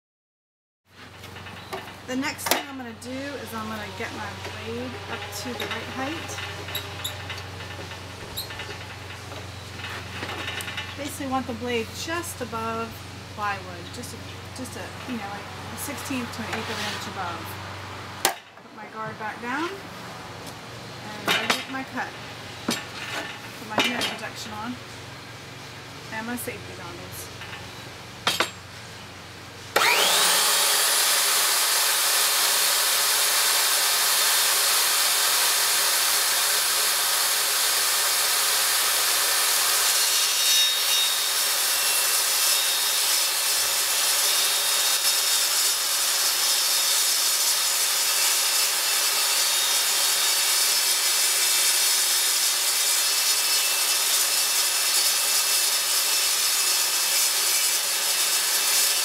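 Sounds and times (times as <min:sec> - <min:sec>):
table saw cutting plywood: 0:01.2 - 0:17.6, 0:29.7 - 0:59.0.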